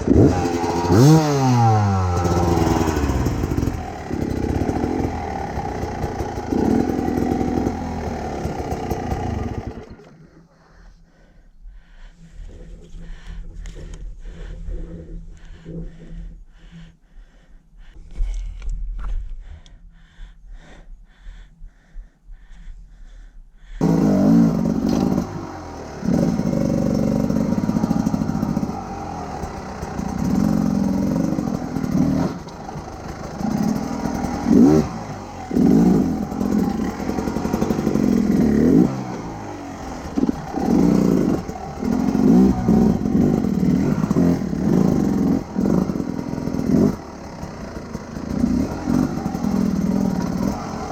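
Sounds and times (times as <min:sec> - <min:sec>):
motorcycle engine revving: 0:00.0 - 0:10.3, 0:23.8 - 0:50.9.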